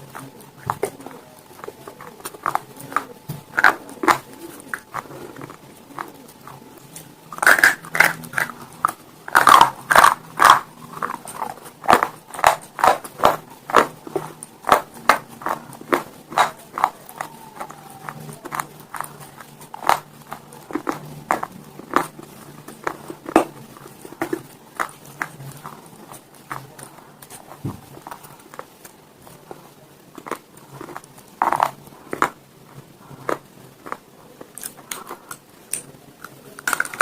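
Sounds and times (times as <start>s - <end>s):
person chewing stone: 0.0s - 37.0s.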